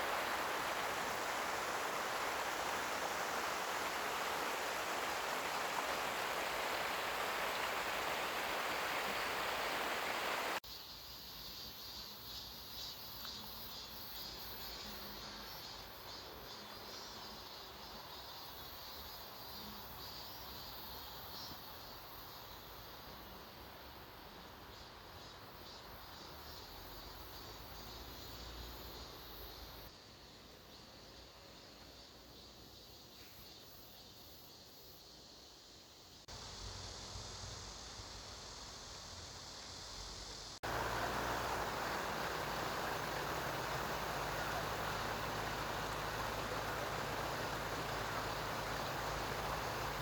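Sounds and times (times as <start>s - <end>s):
rushing stream: 0.0s - 10.6s, 36.3s - 50.0s
faint high insect chirps: 0.0s - 50.0s.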